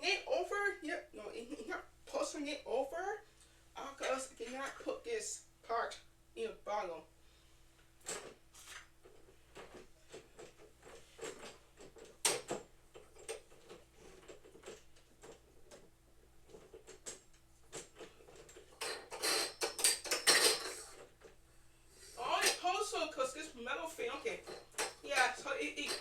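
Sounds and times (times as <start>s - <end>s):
parts clattering: 8.0s - 21.4s, 24.0s - 26.0s
parts clicking and knocking: 9.0s - 21.4s.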